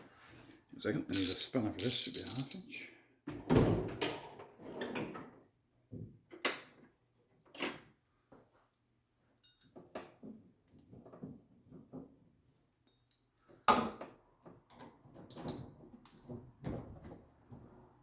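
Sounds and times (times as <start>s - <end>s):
metal hand tools clattering: 1.2s - 2.6s.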